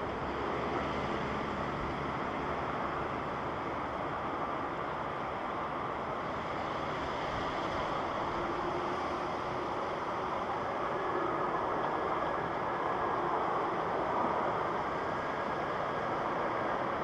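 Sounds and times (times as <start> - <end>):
jet airliner roar: 5.4 - 17.0.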